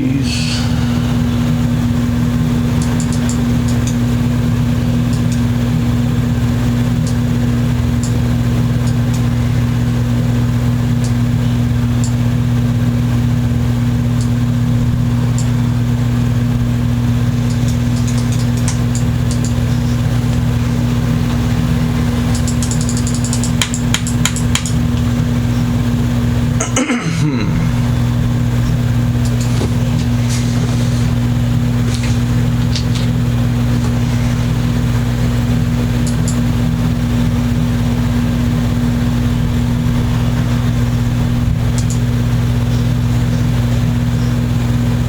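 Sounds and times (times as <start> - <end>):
low machine hum: 0.0 - 45.0.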